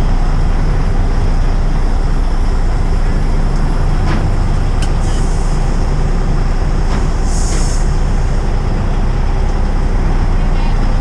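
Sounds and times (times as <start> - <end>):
heavy vehicle engine rumbling: 0.0 - 11.0
air hiss: 7.1 - 8.4.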